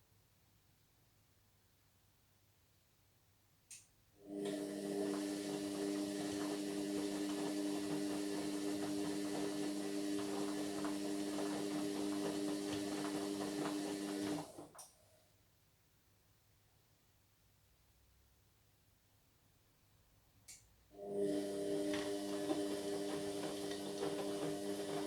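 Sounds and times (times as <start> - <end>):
washing machine motor hum: 4.2 - 14.8, 21.0 - 25.0.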